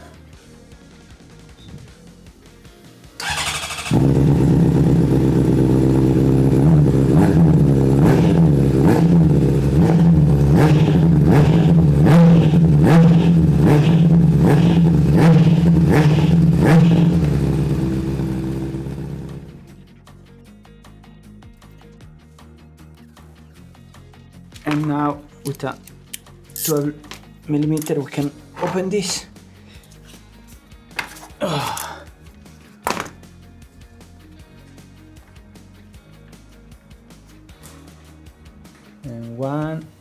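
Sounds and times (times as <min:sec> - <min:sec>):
motorcycle engine starter: 0:03.2 - 0:19.7
motorcycle engine throttle blips: 0:03.2 - 0:19.7.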